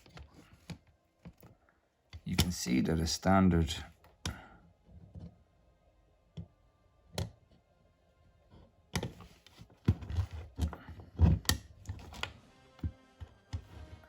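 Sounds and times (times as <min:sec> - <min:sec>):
plastic parts clicking and clattering: 0:09.0 - 0:12.4.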